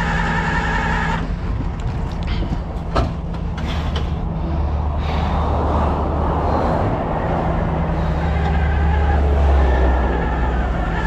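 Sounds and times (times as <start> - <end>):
truck engine drone: 0.0 - 11.0
tyre and wind noise: 1.1 - 8.6.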